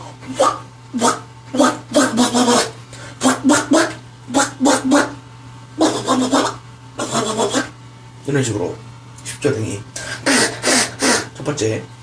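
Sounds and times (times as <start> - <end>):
beatbox duck quacks: 0.2 - 5.2, 5.8 - 7.8, 10.0 - 11.4.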